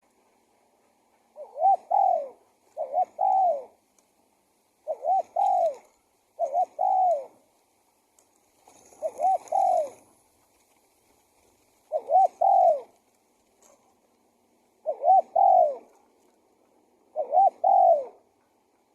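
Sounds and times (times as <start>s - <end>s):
dove cooing: 1.2s - 3.8s, 4.8s - 7.5s, 8.7s - 10.2s, 11.8s - 18.9s.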